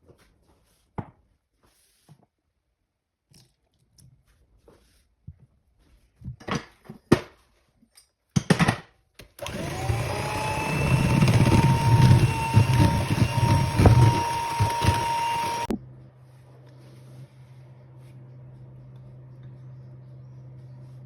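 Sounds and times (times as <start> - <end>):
kitchen motor whirring: 9.4 - 15.7.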